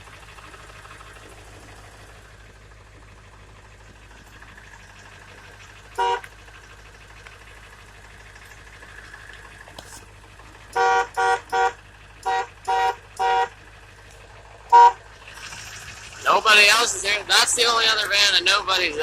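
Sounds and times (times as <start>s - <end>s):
truck horn toots: 6.0s - 6.4s, 10.7s - 13.6s, 14.7s - 15.1s.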